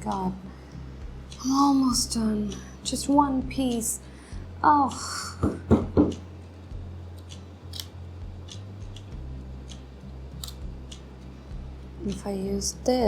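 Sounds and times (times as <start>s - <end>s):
sharp knocks: 5.4s - 6.2s.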